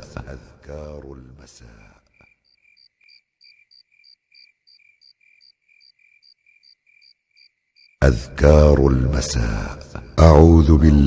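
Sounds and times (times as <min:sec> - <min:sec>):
faint cricket chirping: 0:01.6 - 0:08.1.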